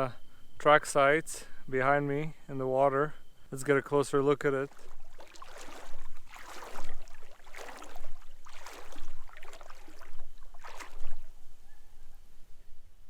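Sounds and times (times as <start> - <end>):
swishing footsteps: 4.7 - 11.3.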